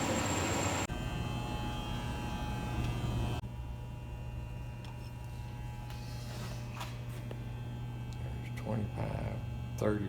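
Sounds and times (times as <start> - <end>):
lathe motor humming: 0.0 - 0.9.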